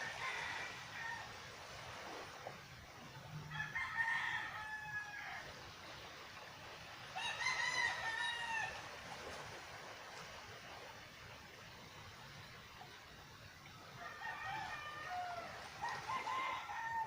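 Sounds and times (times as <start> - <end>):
rooster crowing: 3.4 - 5.5, 7.2 - 8.8, 14.0 - 17.0.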